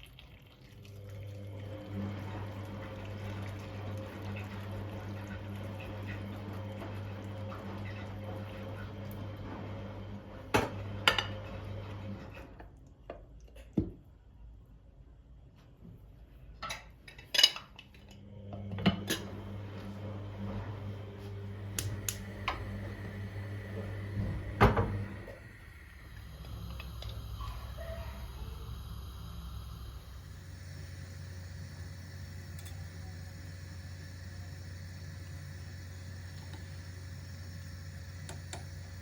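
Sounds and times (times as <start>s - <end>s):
steady low hum: 19.0s - 39.0s.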